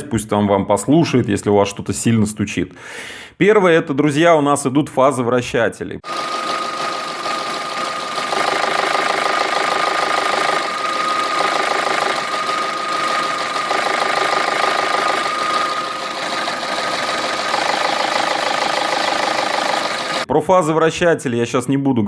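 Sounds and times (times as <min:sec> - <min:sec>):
thin high whine: 0:06.1 - 0:20.3
car engine idling with knocking: 0:06.2 - 0:20.2.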